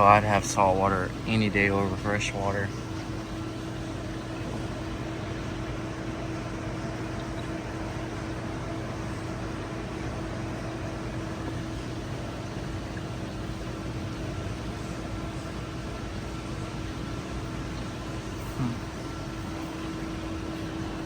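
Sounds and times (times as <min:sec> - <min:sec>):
aquarium equipment hum: 0:00.0 - 0:21.0.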